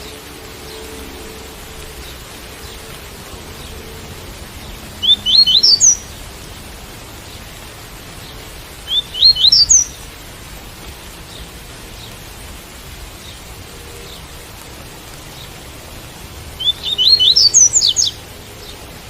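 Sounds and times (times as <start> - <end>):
small bird singing: 0.0 - 6.2, 8.2 - 10.0, 16.6 - 18.8
rain hiss: 0.0 - 19.0.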